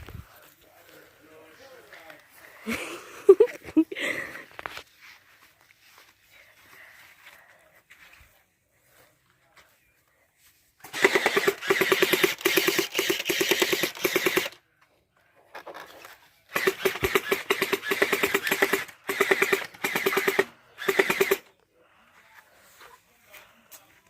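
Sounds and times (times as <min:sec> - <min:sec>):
gel blaster firing full auto: 0:10.8 - 0:14.6, 0:16.5 - 0:21.5.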